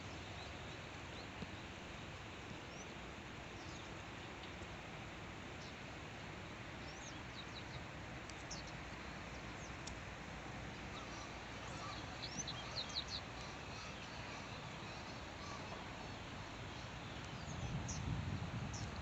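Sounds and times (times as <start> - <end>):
small birds chirping: 2.5 - 4.8, 6.8 - 19.0.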